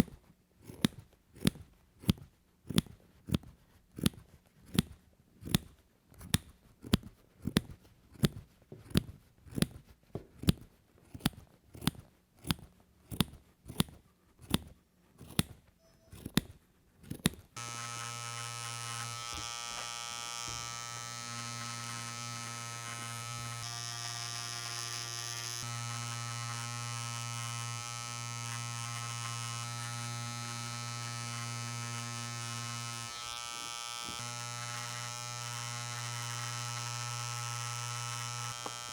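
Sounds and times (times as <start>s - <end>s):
scissors snipping yarn: 0.0s - 33.1s
electric motor tool buzzing: 17.6s - 38.9s.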